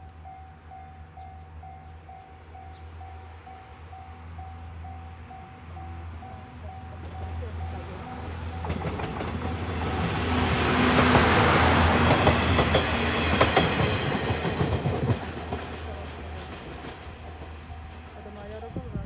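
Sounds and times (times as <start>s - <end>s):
train wheels clattering on rails: 6.9s - 18.0s.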